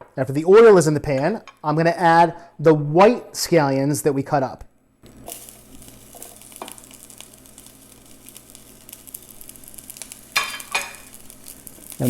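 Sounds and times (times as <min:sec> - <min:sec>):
scallions sizzling in hot oil: 0:05.0 - 0:12.0.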